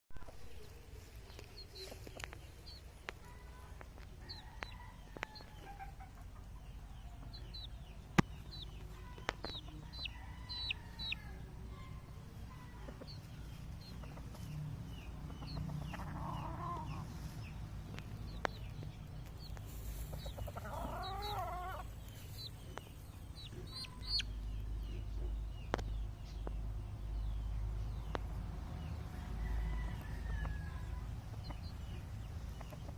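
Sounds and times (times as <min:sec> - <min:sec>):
gamefowl clucking and calling: 0:20.0 - 0:21.9.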